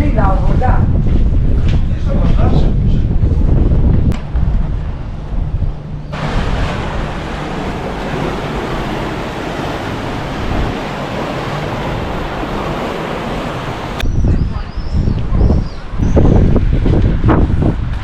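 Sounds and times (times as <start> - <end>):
wind rumbling on microphone: 0.0 - 18.0
surf washing against shore: 6.1 - 14.0.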